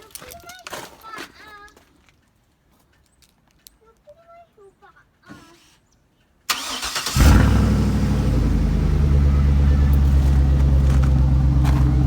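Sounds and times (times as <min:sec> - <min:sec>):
car engine starting and idling: 0:06.5 - 0:12.0.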